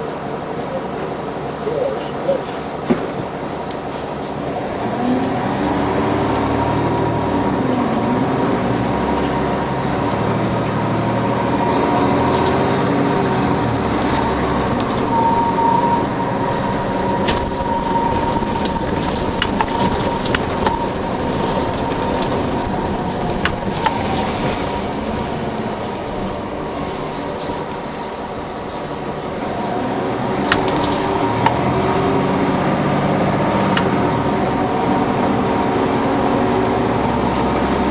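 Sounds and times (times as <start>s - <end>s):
bus engine whining: 0.0s - 37.9s
sharp rattles and clicks: 17.2s - 26.0s.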